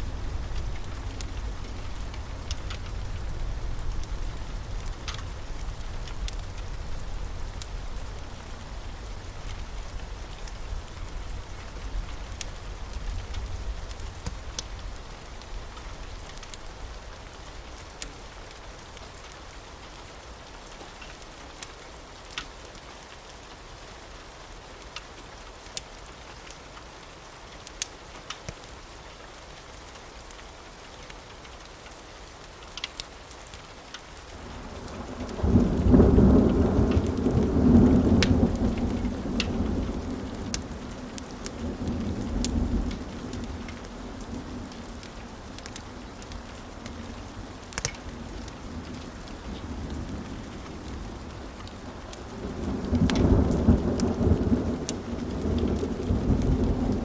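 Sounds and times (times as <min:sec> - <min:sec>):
sharp crackles: 0:00.0 - 0:20.0, 0:29.8 - 0:57.0
steady rain: 0:00.0 - 0:57.0
rolling thunder: 0:34.6 - 0:45.0, 0:52.3 - 0:57.0.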